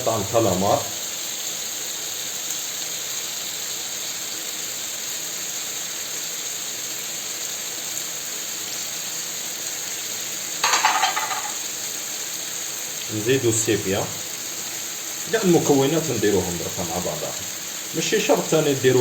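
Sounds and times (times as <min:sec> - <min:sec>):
seafood sizzling in a frying pan: 0:00.0 - 0:19.0
clatter: 0:10.6 - 0:11.6.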